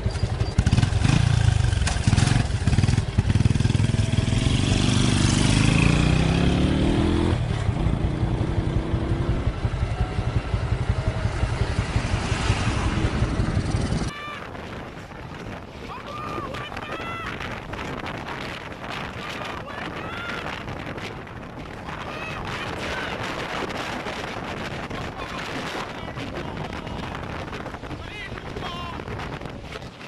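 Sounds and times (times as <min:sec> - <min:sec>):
motorcycle engine revving: 0:00.0 - 0:14.1
wind on microphone: 0:00.0 - 0:30.0.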